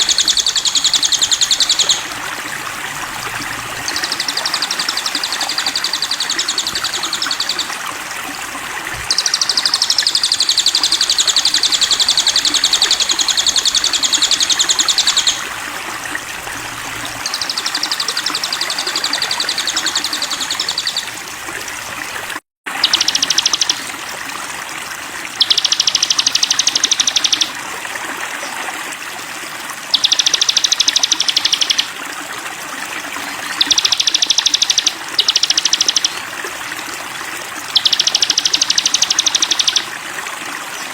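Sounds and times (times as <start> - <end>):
songbird singing rapid high trills: 0.0 - 7.8, 8.9 - 15.6, 16.8 - 21.2, 22.8 - 23.8, 25.4 - 27.5, 29.9 - 32.0, 33.3 - 36.2, 37.7 - 39.9
running water: 0.0 - 40.9.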